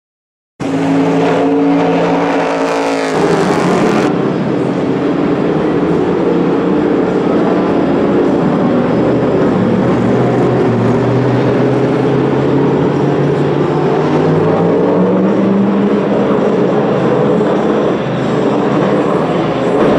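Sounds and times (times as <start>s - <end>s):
race car engine running: 0.6s - 19.9s.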